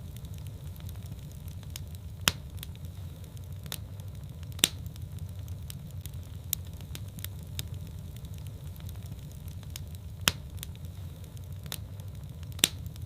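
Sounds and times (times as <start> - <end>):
fire crackling and popping: 0.0 - 13.0
fire flames rumbling: 0.0 - 13.0.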